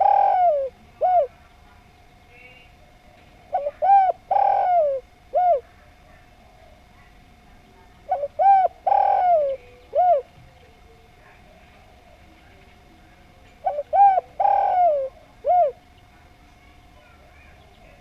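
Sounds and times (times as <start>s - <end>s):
dove cooing: 0.0s - 7.2s, 7.9s - 12.4s, 13.6s - 16.3s.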